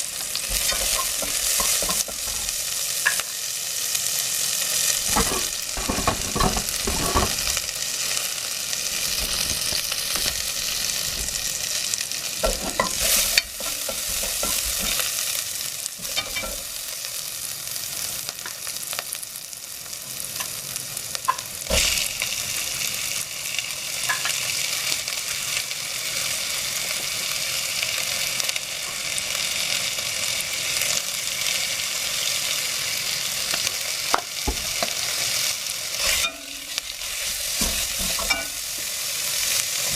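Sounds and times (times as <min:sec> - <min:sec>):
food sizzling in oil: 0:00.0 - 0:39.9
utensil knocking and scraping pan: 0:00.5 - 0:03.2, 0:05.0 - 0:07.6, 0:12.4 - 0:15.1, 0:37.5 - 0:38.6.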